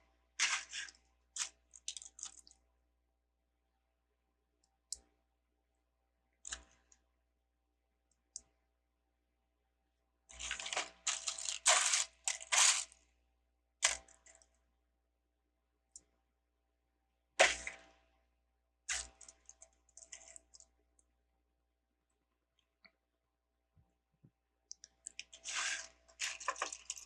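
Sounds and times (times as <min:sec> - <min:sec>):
rummaging through loose pieces: 0:25.4 - 0:27.0.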